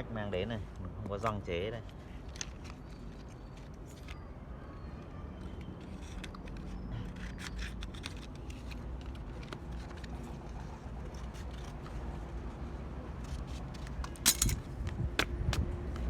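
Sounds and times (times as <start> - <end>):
hands handling small parts: 1.9 - 4.2, 13.2 - 14.6.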